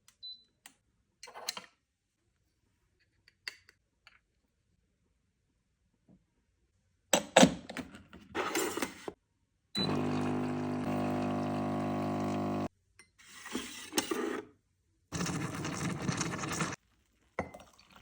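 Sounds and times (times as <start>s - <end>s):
coffee machine pump humming: 9.8s - 12.7s, 15.2s - 16.8s
clatter of coffee machine and cup: 15.2s - 16.8s.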